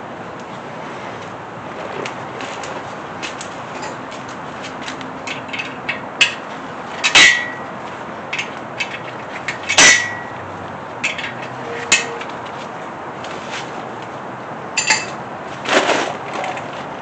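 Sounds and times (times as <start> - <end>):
ringing metallic clanks: 7.0 - 7.7, 8.3 - 10.4, 11.0 - 12.3, 14.8 - 15.2
metal tools clinking: 11.0 - 12.3, 14.8 - 15.2.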